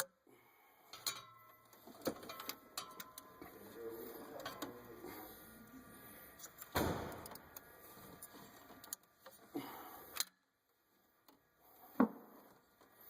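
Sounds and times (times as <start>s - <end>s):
hand tools clanking on metal: 0.9s - 5.2s.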